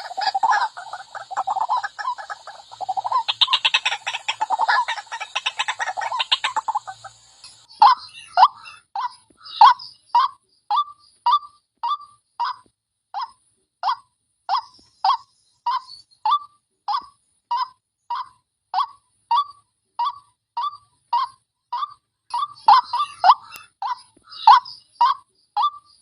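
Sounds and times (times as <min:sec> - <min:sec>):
waterhen harsh wak calls: 0:00.0 - 0:10.3, 0:17.0 - 0:25.8.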